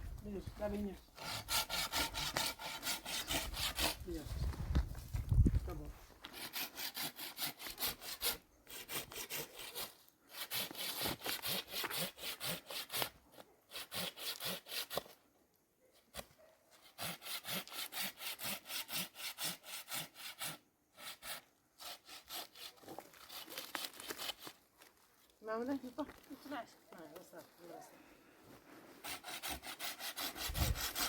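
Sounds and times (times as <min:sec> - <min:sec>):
hand saw cutting wood: 0:01.2 - 0:04.2, 0:06.2 - 0:15.2, 0:16.1 - 0:24.6, 0:29.0 - 0:31.0.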